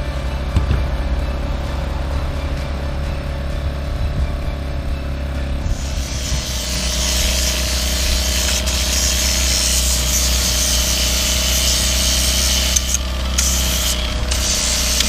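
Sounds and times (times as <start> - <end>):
wire brush scraping brick: 5.7 - 15.0.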